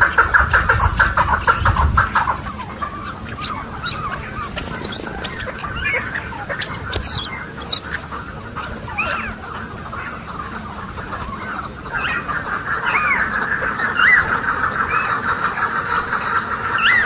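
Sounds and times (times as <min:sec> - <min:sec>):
birds chattering: 0:00.0 - 0:17.0
squeaky bird calls: 0:03.0 - 0:08.0.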